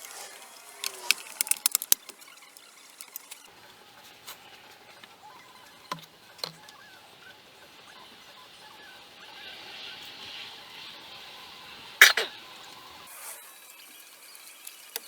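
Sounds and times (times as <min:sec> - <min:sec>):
hand tools clicking on metal: 0:00.0 - 0:03.5.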